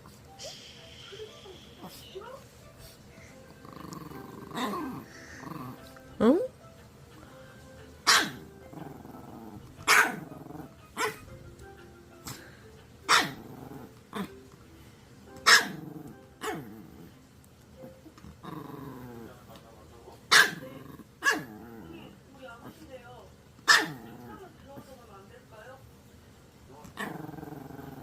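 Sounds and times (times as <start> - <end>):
dog growling: 3.2 - 6.5, 8.1 - 11.4, 12.1 - 14.5, 15.5 - 19.6, 20.3 - 22.9, 23.7 - 24.6, 26.8 - 28.0
dog barking: 8.1 - 8.4, 9.9 - 10.2, 11.0 - 11.2, 13.1 - 13.4, 15.4 - 15.8, 20.3 - 21.5, 23.7 - 24.0.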